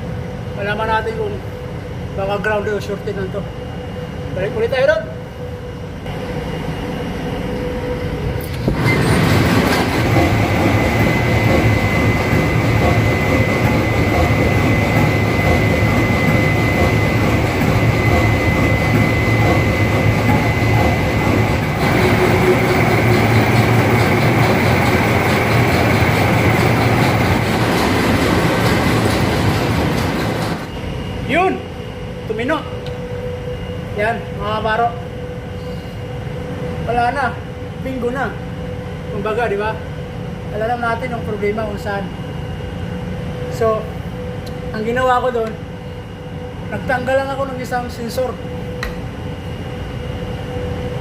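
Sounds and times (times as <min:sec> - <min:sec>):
engine room machinery drone: 0:00.0 - 0:51.0.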